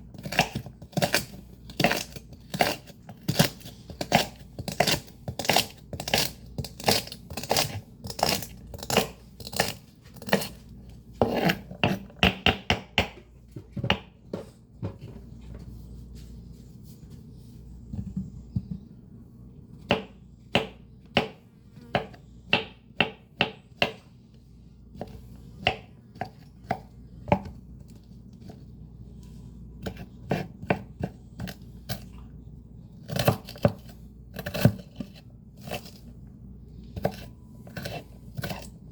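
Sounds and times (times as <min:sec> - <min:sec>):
knife chopping greens: 0:00.1 - 0:10.6, 0:29.8 - 0:32.0, 0:33.0 - 0:36.0, 0:37.0 - 0:38.9.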